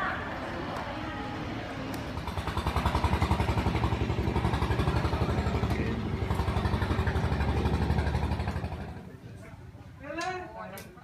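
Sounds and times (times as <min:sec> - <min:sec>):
motorboat engine running: 0:02.1 - 0:09.0.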